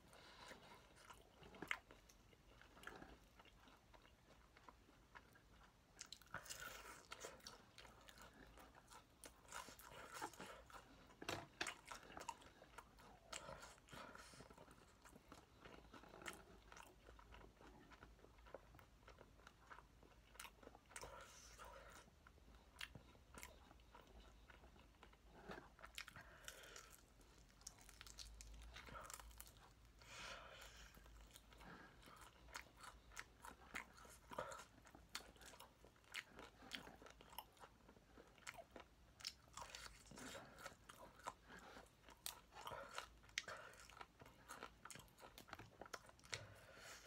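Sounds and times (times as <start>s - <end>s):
crunching fried chicken: 24.8s - 29.9s.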